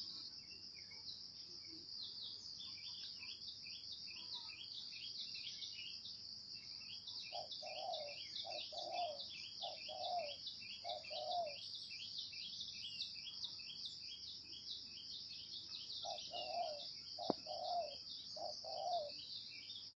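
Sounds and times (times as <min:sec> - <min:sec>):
insects chirping: 0:00.0 - 0:19.9
dove cooing: 0:07.3 - 0:11.6, 0:16.0 - 0:19.2.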